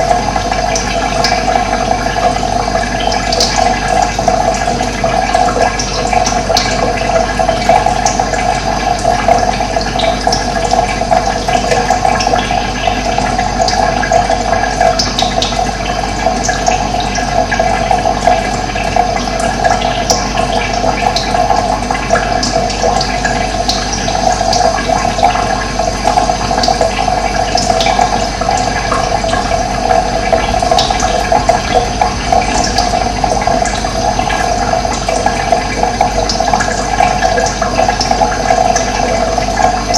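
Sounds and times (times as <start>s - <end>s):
water rushing: 24.0s - 39.9s.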